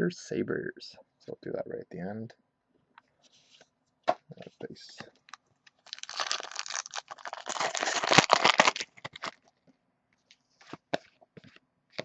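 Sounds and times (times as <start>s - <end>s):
cards and packaging rustling: 5.2s - 9.5s.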